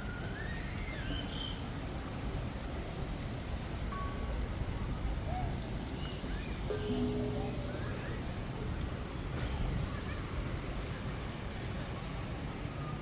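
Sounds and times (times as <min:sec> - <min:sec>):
thin high whine: 0:06.6 - 0:09.2.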